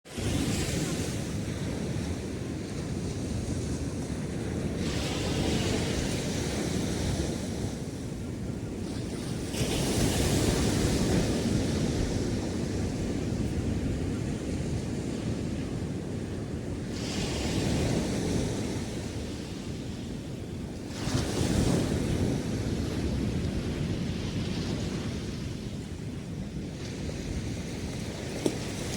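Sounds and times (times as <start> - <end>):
low rumble of the sea: 0.1 - 28.9
waves breaking on sand: 0.1 - 28.9.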